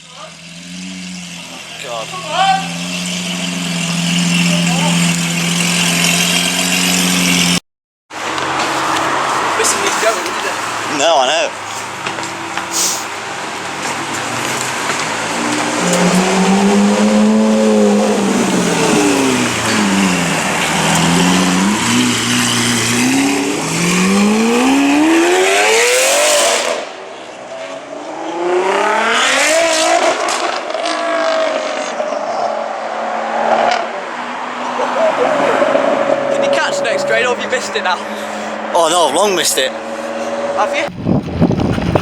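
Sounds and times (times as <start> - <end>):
sports car engine revving: 0.2 - 7.6, 8.2 - 27.0, 27.8 - 32.6.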